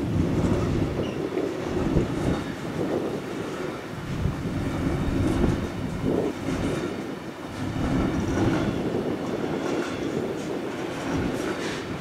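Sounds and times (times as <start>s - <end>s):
train wheels rumbling on rails: 0.0s - 12.0s
wheels clacking on track: 0.0s - 12.0s.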